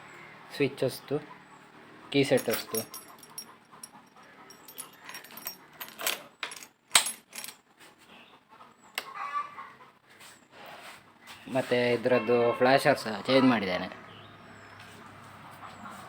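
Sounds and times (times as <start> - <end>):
keys jangling: 2.4 - 7.6.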